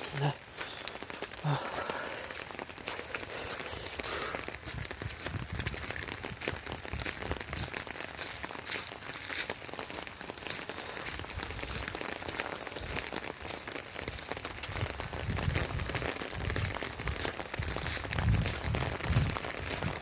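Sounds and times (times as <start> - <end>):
rain pattering on umbrella: 0.0 - 20.0.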